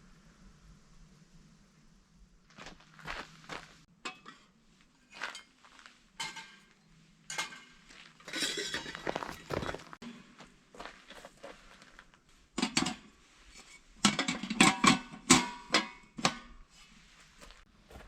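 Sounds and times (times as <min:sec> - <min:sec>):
dishes and utensils clinking: 0:06.2 - 0:09.8.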